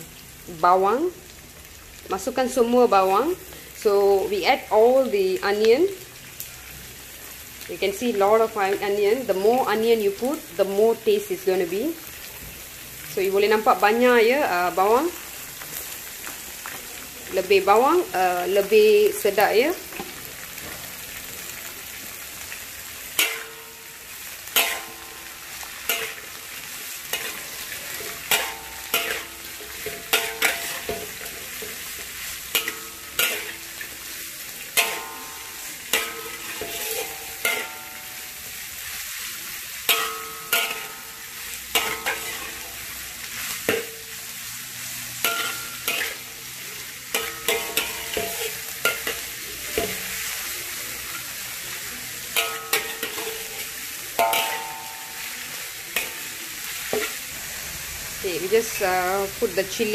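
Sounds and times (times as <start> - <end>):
onions sizzling in oil: 0.0 - 59.9
metal ladle scraping and knocking wok: 24.5 - 26.4, 27.1 - 33.9, 34.7 - 38.7, 39.8 - 42.7, 45.2 - 46.4, 47.1 - 50.2, 52.3 - 59.6.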